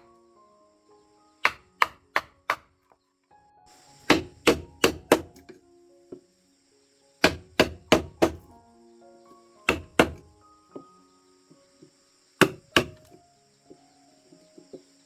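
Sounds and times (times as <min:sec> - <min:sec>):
high insect drone: 0:00.0 - 0:02.7, 0:03.7 - 0:15.0
blade chopping on wood: 0:01.5 - 0:02.7, 0:04.0 - 0:05.5, 0:07.2 - 0:08.5, 0:09.7 - 0:10.3, 0:12.4 - 0:13.2.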